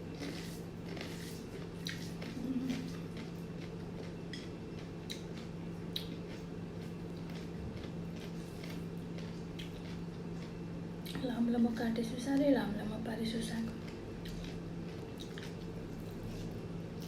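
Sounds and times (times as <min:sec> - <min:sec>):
steady low hum: 0:00.0 - 0:17.0
wet mouth clicks and chewing: 0:00.2 - 0:11.2, 0:13.7 - 0:17.0.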